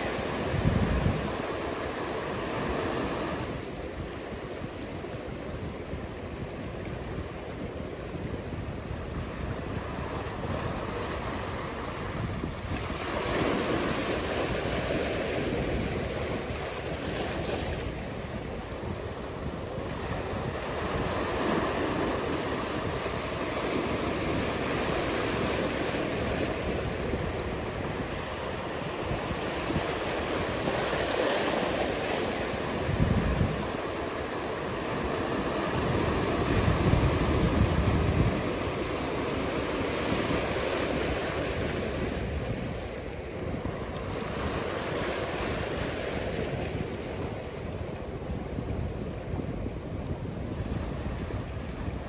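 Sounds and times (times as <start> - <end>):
ocean surf breaking: 0.0 - 52.0
wind rumbling on microphone: 0.0 - 52.0.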